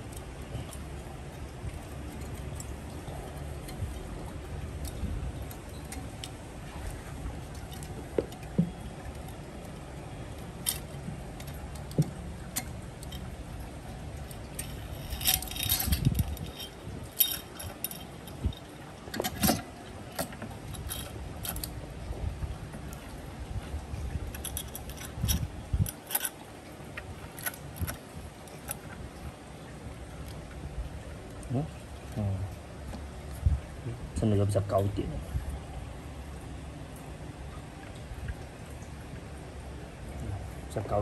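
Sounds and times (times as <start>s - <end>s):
metallic clicks of tools and parts: 24.3s - 26.4s.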